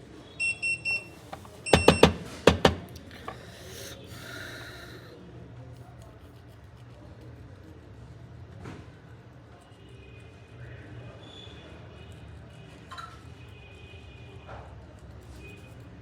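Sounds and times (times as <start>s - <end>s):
sharp clicks or knocks: 1.3s - 3.4s.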